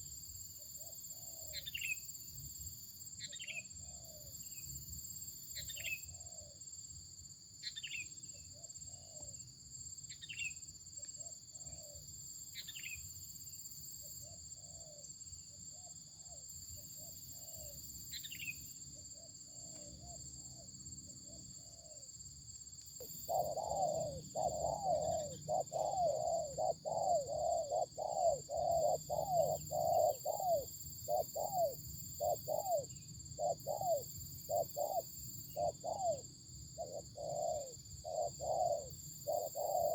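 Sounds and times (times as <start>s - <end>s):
dove cooing: 23.0s - 36.2s, 36.8s - 39.9s.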